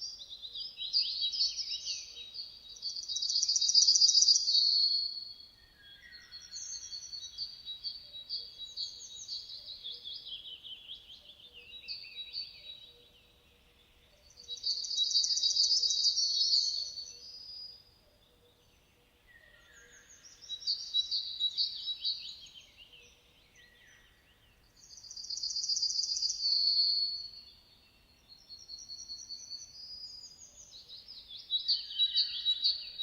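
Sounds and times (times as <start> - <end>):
bird chirps and twitters: 14.4 - 17.6, 19.7 - 27.6, 28.3 - 33.0.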